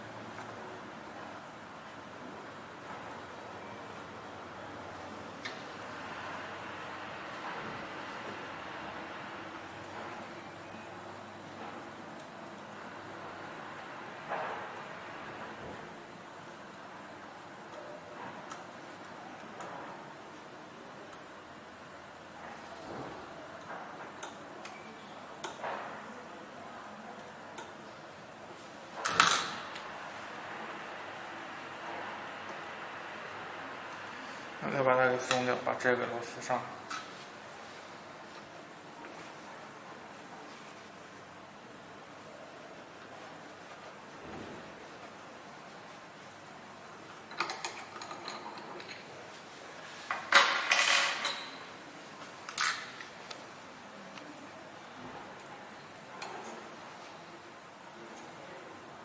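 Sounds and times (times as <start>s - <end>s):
metal tools clinking: 50.3s - 51.7s.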